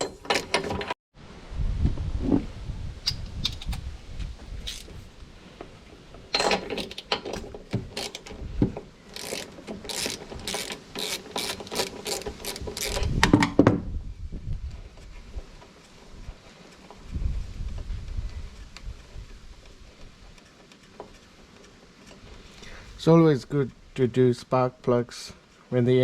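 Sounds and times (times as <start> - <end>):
metal clatter: 6.3 - 8.4
ratchet wrench clicking: 6.4 - 8.3, 9.1 - 13.1.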